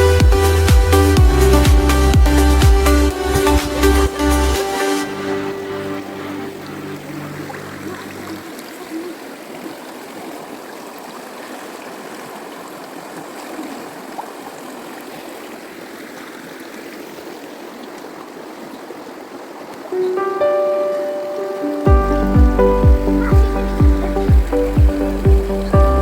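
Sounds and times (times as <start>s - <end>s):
music: 0.0s - 8.1s, 20.0s - 26.0s
stream flowing: 0.0s - 26.0s.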